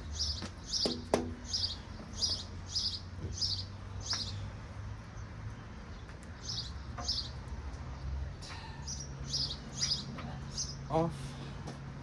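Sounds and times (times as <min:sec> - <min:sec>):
bird chirping: 0:00.0 - 0:04.4, 0:08.8 - 0:10.8.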